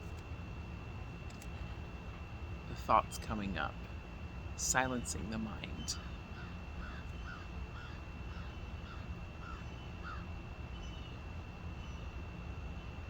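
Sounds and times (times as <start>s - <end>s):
thin high whine: 0.0s - 13.0s
crow cawing: 6.0s - 10.3s.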